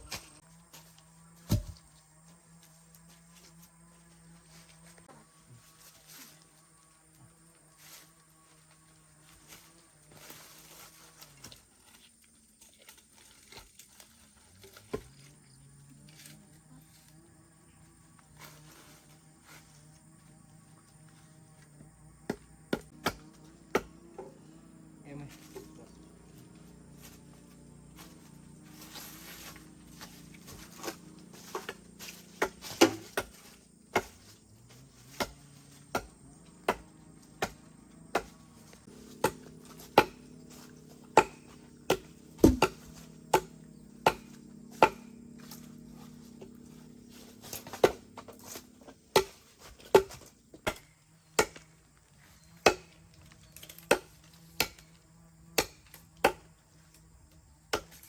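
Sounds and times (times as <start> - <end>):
tool striking wood: 1.5 - 1.8, 22.3 - 24.3, 39.1 - 40.3, 41.1 - 45.1.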